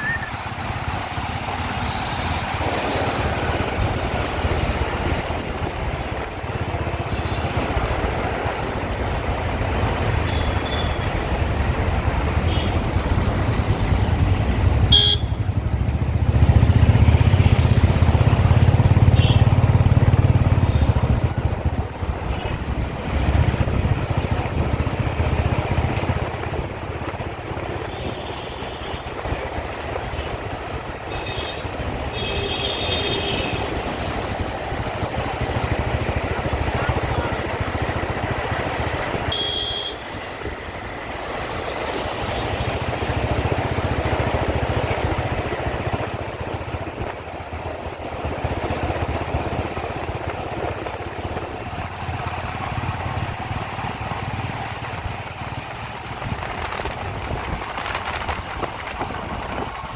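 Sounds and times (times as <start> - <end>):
motorbike engine and wind rumble: 0.0 - 59.9
car horn toots: 14.9 - 15.4, 19.1 - 19.6, 39.3 - 40.2.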